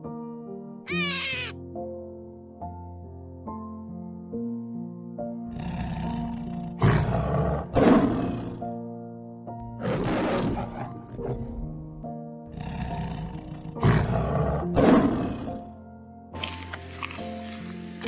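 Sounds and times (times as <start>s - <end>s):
background music: 0.0s - 18.0s
lion roaring: 5.5s - 8.6s, 9.7s - 11.8s, 12.5s - 15.6s.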